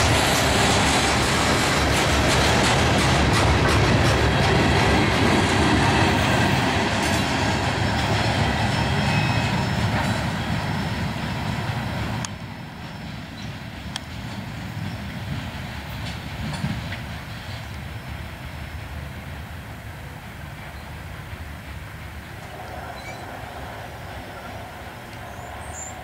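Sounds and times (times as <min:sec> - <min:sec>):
freight train wheels clattering: 0:00.0 - 0:19.4.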